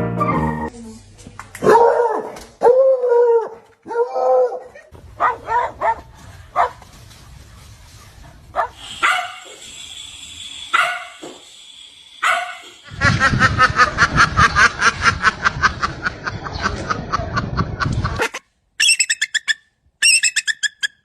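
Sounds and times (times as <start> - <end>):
dog barking: 1.6 - 6.8, 8.6 - 9.6, 10.7 - 11.2, 12.2 - 12.7.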